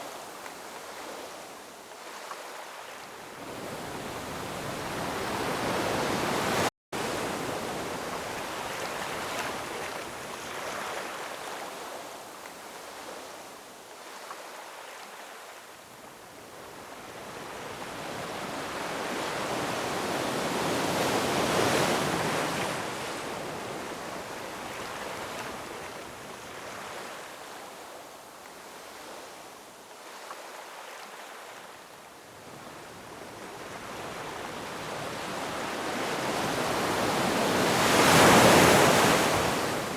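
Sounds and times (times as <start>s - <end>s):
ocean surf washing over rocks: 34.8s - 39.9s.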